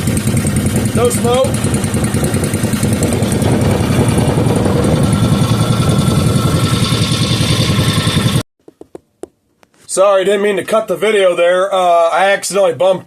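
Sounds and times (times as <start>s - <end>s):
small engine running steadily: 0.0s - 8.4s.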